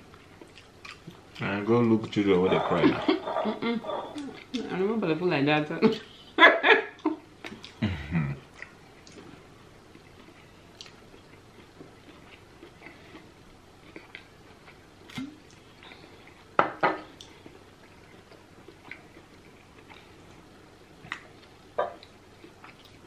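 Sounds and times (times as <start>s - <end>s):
soft chewing and lip smacks: 0.0s - 1.5s, 4.0s - 4.7s, 7.0s - 7.8s, 8.5s - 16.5s, 17.1s - 20.4s, 21.0s - 23.0s.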